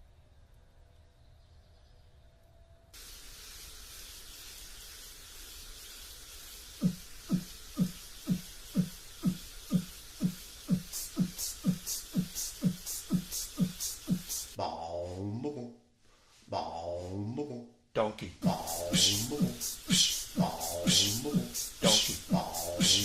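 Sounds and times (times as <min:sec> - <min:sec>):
steady hiss: 0:02.9 - 0:14.6, 0:18.4 - 0:23.0
hi-hat ticks: 0:06.3 - 0:14.6, 0:18.4 - 0:23.0
kick drum beat: 0:18.4 - 0:19.6, 0:22.3 - 0:23.0.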